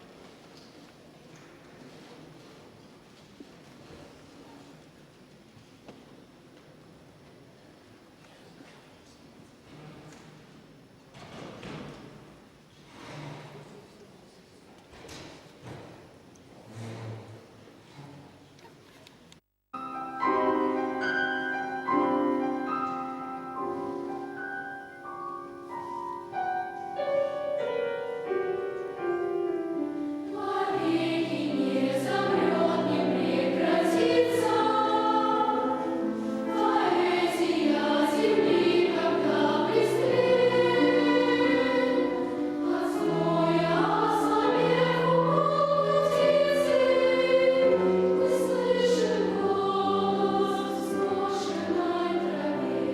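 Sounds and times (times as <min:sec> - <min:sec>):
piano accompaniment: 0:19.7 - 0:52.9
children's choir singing: 0:19.9 - 0:52.9.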